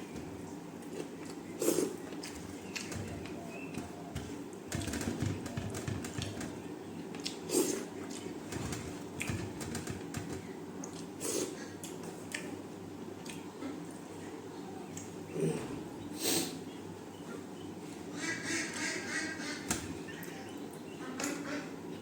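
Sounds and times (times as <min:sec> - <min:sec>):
chewing and mouth smacks: 0:10.8 - 0:11.2, 0:11.8 - 0:12.6, 0:13.2 - 0:13.5.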